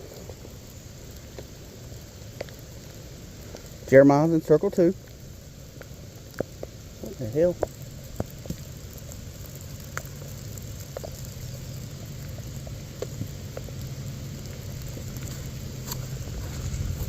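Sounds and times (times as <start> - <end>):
low steady rumble: 0.0 - 17.0
rain pattering: 0.0 - 17.0
single raindrops tapping: 0.1 - 17.0.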